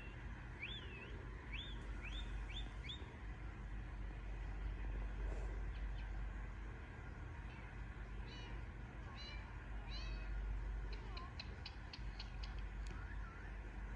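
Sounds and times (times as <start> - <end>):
steady low hum: 0.0 - 13.9
parakeet ticking chirps: 10.9 - 12.7.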